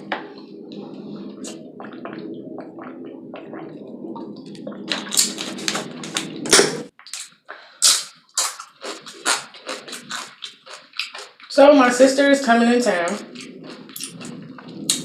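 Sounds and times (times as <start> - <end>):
low steady hum: 0.0 - 6.9, 8.4 - 15.0
chewing crunchy chips: 4.5 - 11.6, 12.9 - 15.0.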